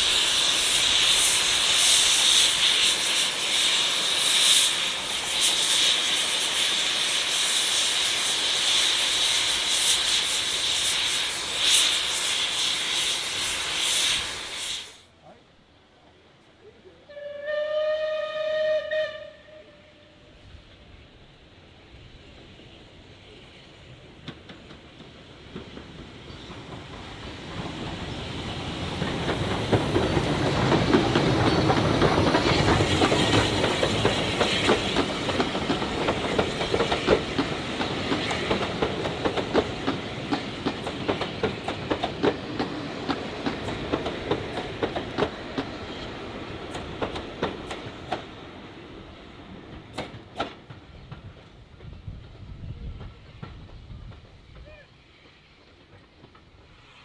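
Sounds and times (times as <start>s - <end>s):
train passing: 0.0s - 57.0s.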